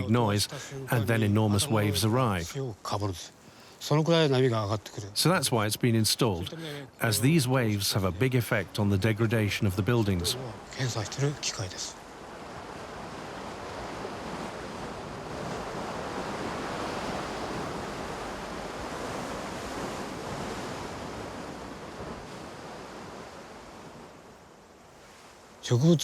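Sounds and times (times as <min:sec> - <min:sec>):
ocean waves breaking: 0:00.0 - 0:26.0.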